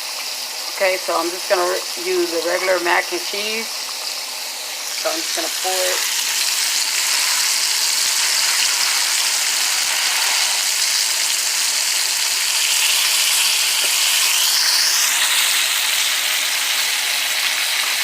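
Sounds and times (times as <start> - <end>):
kitchen exhaust fan: 0.0 - 18.0
ribs sizzling in hot oil: 0.0 - 18.0
rising whoosh: 8.8 - 11.9.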